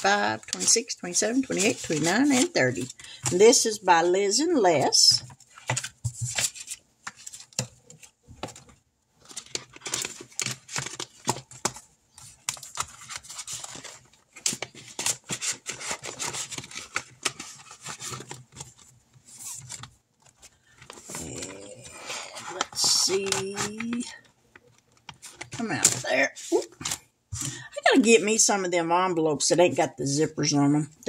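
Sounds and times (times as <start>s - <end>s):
paper money rustling: 0.0s - 3.8s.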